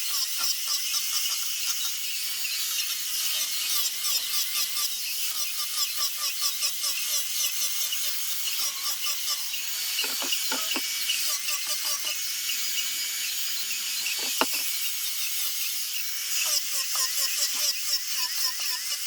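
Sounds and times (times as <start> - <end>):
rotary power tool sanding wood: 10.0 - 10.8, 11.4 - 14.7
sharp knocks: 14.1 - 14.6.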